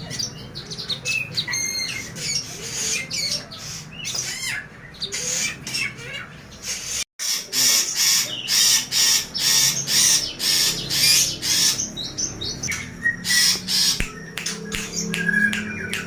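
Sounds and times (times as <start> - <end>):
songbirds harsh scratchy calls: 0.0 - 16.0
bird whistled notes: 12.6 - 16.0.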